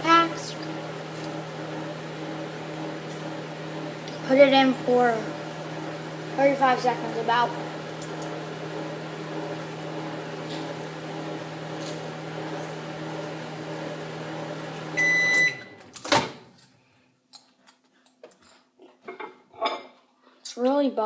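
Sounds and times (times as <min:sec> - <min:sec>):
microwave oven humming: 0:00.0 - 0:16.6
microwave beeping: 0:07.2 - 0:16.4.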